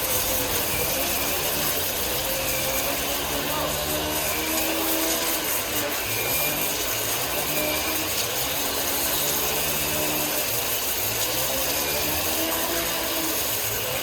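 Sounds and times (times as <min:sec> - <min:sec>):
woodworking machinery whirring: 0:00.0 - 0:14.0.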